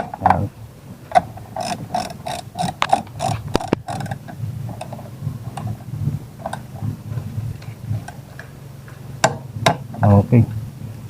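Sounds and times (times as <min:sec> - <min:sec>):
torque wrench ratchet clicking: 0:01.5 - 0:05.7.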